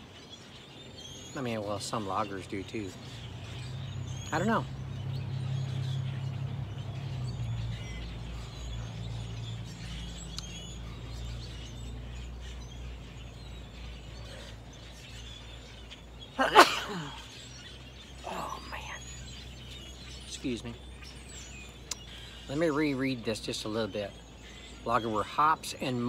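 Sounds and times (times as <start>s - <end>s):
low outdoor hum: 0.0s - 26.0s
small birds chirping: 0.0s - 26.0s
person burping: 16.4s - 17.2s.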